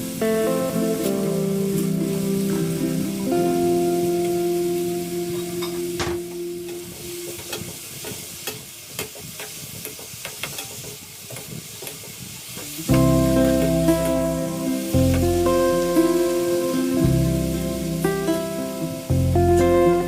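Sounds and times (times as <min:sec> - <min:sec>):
food sizzling in frying pan: 0:00.0 - 0:20.0
background music: 0:12.9 - 0:20.0.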